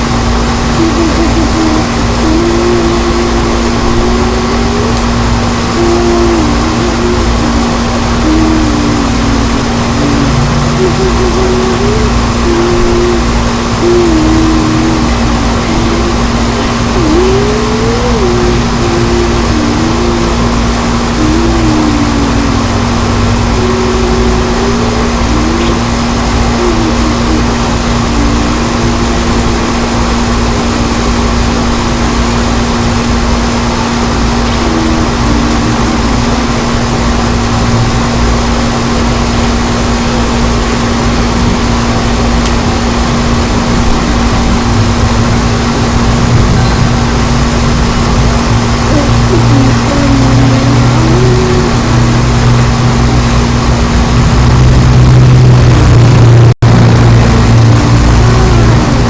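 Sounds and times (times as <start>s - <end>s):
wavering whistle-like tone: 0.6s - 31.7s.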